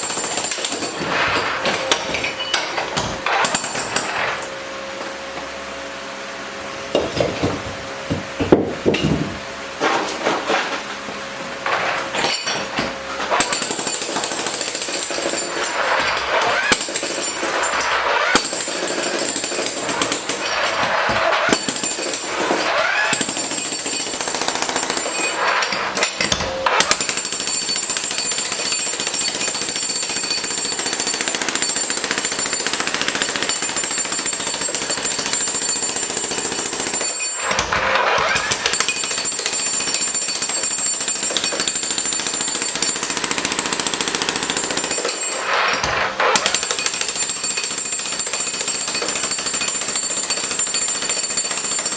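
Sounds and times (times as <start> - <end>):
jackhammer breaking concrete: 0.0 - 4.5, 6.9 - 10.8, 11.4 - 51.9.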